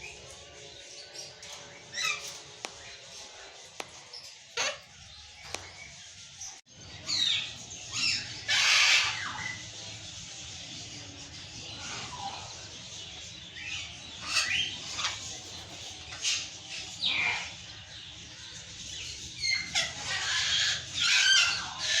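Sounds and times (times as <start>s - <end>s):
parrots squawking and chirping: 0.0s - 9.9s, 13.6s - 17.8s, 19.0s - 22.0s.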